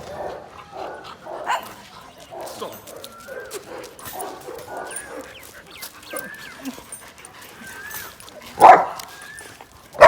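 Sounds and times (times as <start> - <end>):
dogs yipping: 0.2 - 10.0
dogs whining: 2.7 - 9.9.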